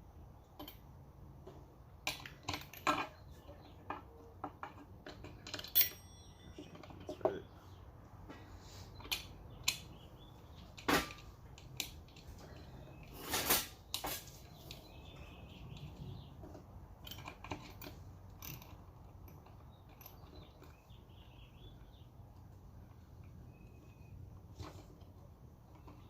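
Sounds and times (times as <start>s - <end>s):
metal parts and tools clinking: 0.5s - 1.0s, 2.0s - 7.5s, 9.0s - 21.9s.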